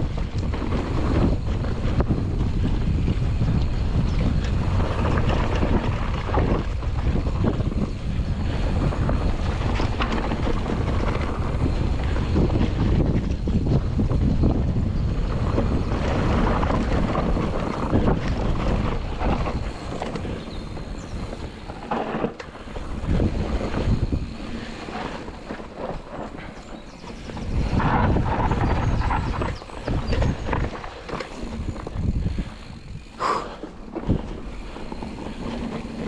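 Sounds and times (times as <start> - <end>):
bike clattering over bumps: 0.0 - 36.0
tyres rolling on dirt and rock: 0.0 - 36.0
wind buffeting microphone: 0.0 - 36.0.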